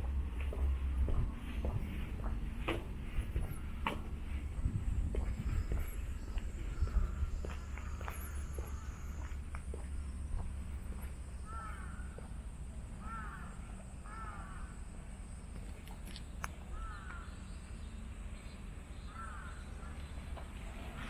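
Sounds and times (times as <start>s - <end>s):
low outdoor rumble: 0.0s - 21.0s
bird calling: 5.4s - 9.4s, 11.4s - 12.2s, 16.7s - 17.5s.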